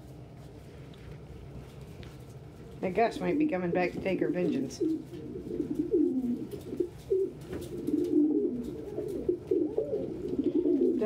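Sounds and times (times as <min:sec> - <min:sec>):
pigeons cooing: 0:04.4 - 0:11.0.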